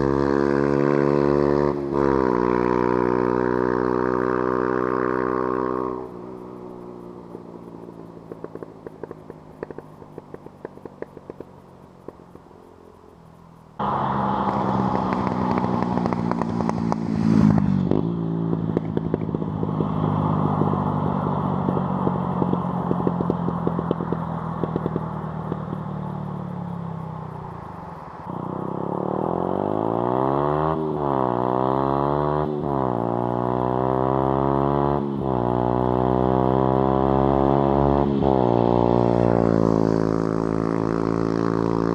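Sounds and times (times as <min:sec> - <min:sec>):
motorcycle engine revving: 0:00.0 - 0:41.9
sharp exhaust pops: 0:03.6 - 0:29.9.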